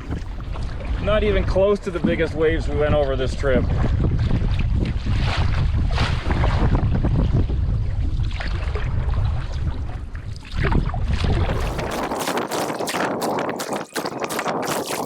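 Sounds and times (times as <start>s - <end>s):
wind buffeting microphone: 0.0s - 15.0s
water splashing against canoe: 8.1s - 15.0s.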